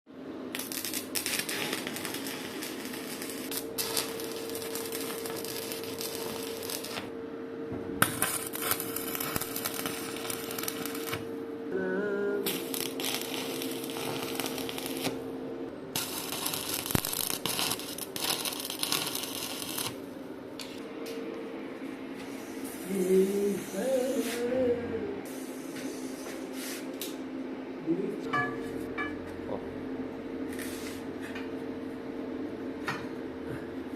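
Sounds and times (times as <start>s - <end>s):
steady hum: 0.1s - 33.9s
arc welding crackling sizzle: 0.5s - 7.1s, 8.0s - 21.2s.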